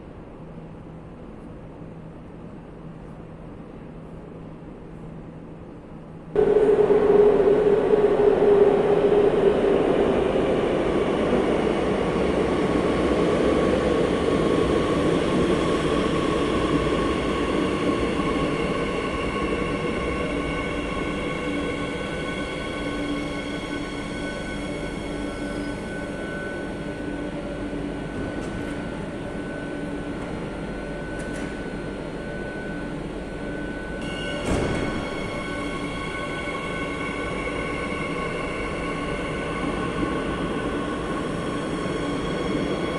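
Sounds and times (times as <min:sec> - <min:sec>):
train wheels rumbling on track: 0:06.4 - 0:32.8, 0:33.4 - 0:42.9.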